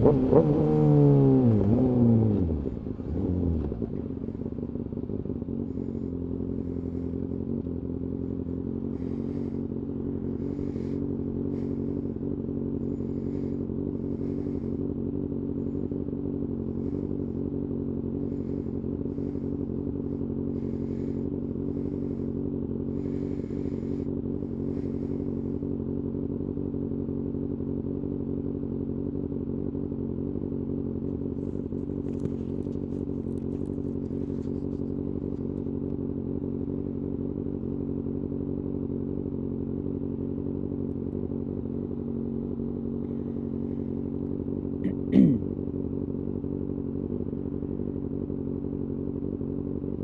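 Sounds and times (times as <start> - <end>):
motorcycle engine cruising: 0.0 - 50.0.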